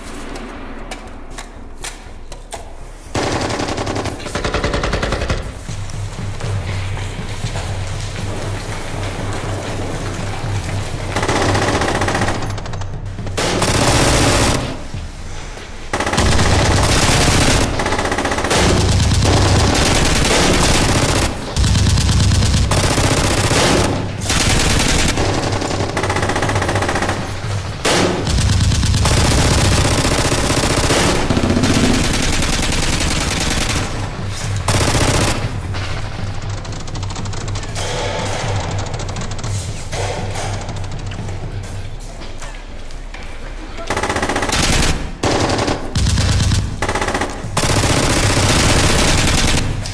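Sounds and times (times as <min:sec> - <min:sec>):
background music: 0:00.0 - 0:49.9
automatic gunfire bursts: 0:13.4 - 0:14.9, 0:15.9 - 0:34.1.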